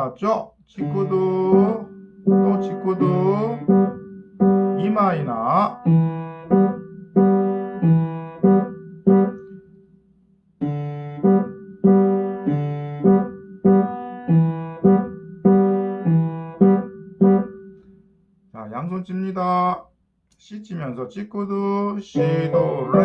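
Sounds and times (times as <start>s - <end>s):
piano block chords: 0.0s - 9.8s, 10.6s - 17.9s, 22.2s - 23.0s.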